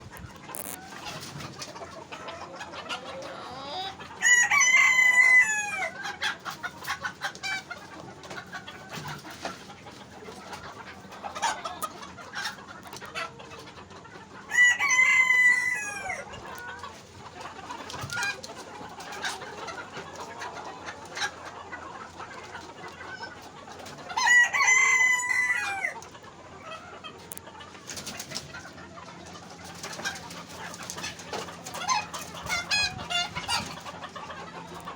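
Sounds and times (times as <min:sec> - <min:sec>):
chickens clucking: 0:00.0 - 0:34.9
rooster crowing: 0:04.2 - 0:06.0, 0:14.5 - 0:16.2, 0:24.2 - 0:26.0.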